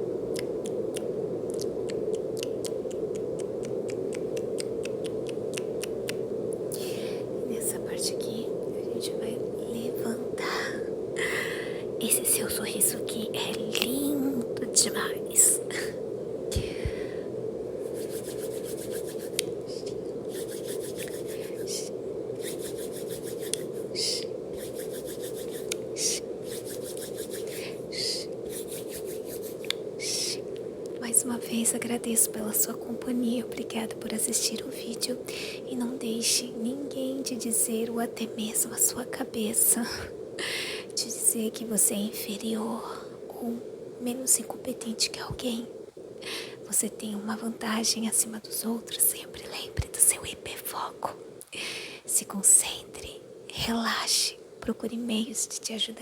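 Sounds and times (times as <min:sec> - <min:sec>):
brown noise hiss: 0:00.0 - 0:56.0
light ticks: 0:00.3 - 0:06.7, 0:13.4 - 0:14.0
rubbing and scratching: 0:17.8 - 0:19.5, 0:20.3 - 0:21.8, 0:22.4 - 0:30.3.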